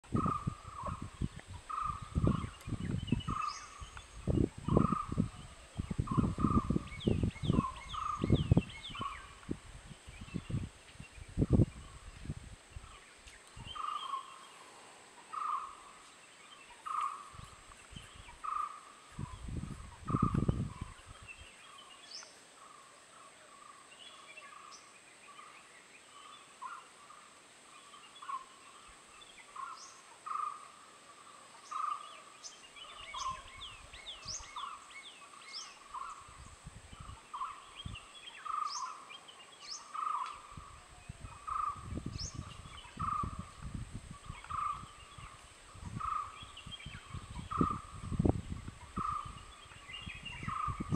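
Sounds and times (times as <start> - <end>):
birds chirping and whistling: 0.1 - 12.1, 12.8 - 14.6, 16.4 - 22.4, 31.6 - 50.9.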